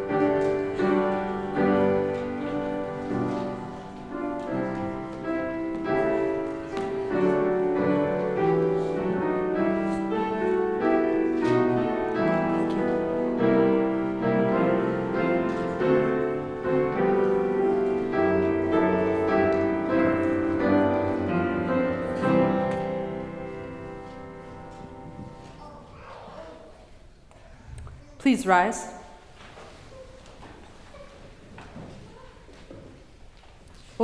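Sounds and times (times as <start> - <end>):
slow piano music: 0.0 - 26.1.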